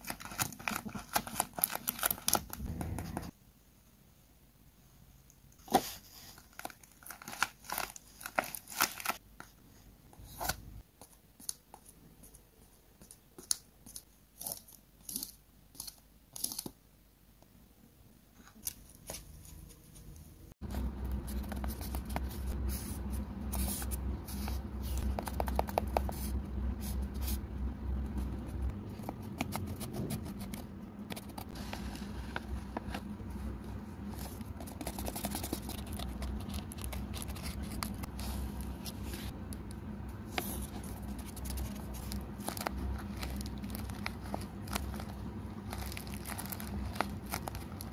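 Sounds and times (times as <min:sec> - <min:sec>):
paper rustling and crinkling: 0:00.0 - 0:03.3, 0:05.6 - 0:09.6, 0:28.9 - 0:39.4, 0:40.2 - 0:47.9
steady low hum: 0:02.4 - 0:03.4, 0:20.1 - 0:47.9.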